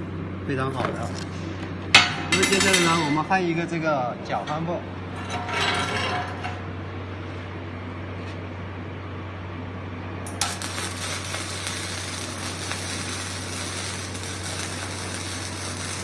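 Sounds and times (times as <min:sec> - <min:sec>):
welding machine humming: 0:09.6 - 0:16.0
welding arc crackling sizzle: 0:10.2 - 0:16.0.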